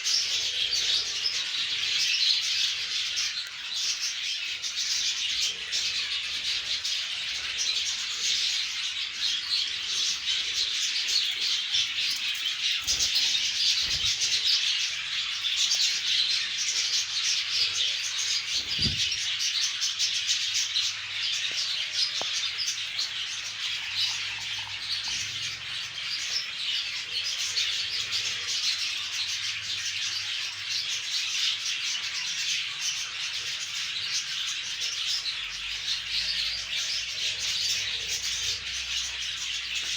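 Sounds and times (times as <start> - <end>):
parrots chirping and chattering: 0.0 - 39.9.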